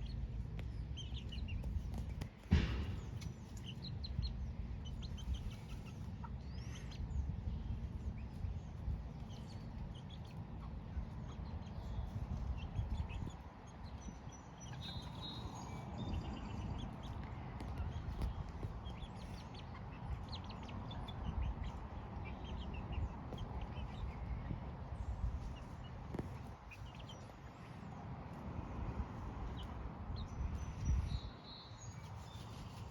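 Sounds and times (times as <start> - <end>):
steady low rumble: 0.0 - 31.3
hens clucking softly: 5.1 - 7.1.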